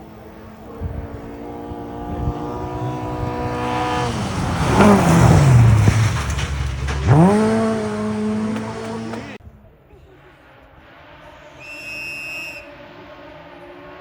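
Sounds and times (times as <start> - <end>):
rally car engine running hard: 0.0 - 9.4
gravel and tyre noise: 0.0 - 14.0.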